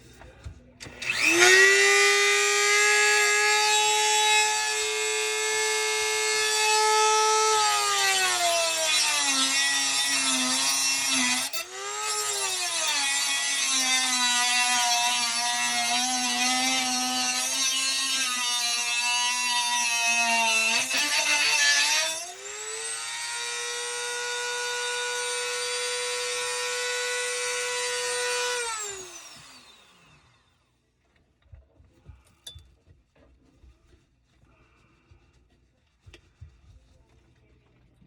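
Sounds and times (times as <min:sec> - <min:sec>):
power tool motor whining: 0:00.8 - 0:30.5.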